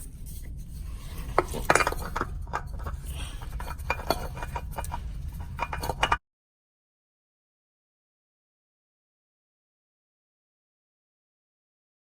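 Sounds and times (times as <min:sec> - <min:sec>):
light metallic clicks and clinks: 0:00.0 - 0:06.2
steady low hum: 0:00.0 - 0:06.2.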